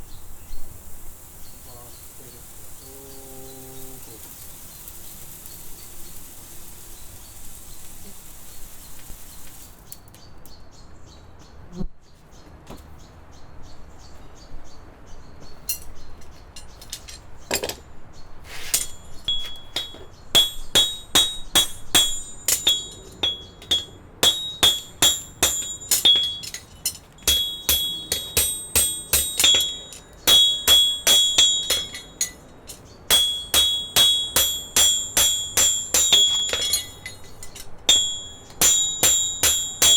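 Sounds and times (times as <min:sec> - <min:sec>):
hammer striking steel horseshoe: 0:18.7 - 0:39.9.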